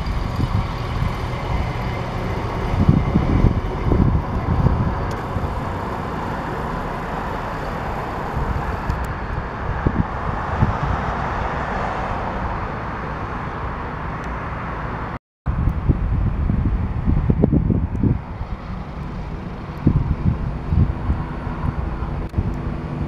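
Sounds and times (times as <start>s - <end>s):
wind buffeting microphone: 0.0s - 13.9s, 15.5s - 23.0s
passenger train passing: 0.0s - 15.1s.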